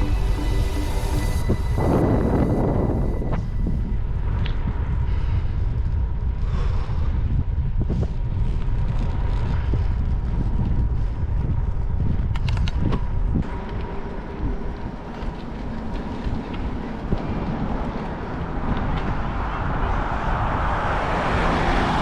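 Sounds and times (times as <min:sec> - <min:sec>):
wind buffeting microphone: 0:00.0 - 0:22.0
bicycle tyres on gravel: 0:03.4 - 0:21.2.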